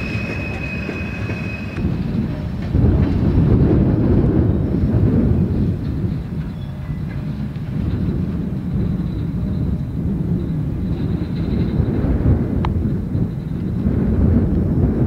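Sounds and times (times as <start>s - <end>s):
faint thin squeal: 0.0s - 1.8s
freight train rumbling past: 0.0s - 15.0s.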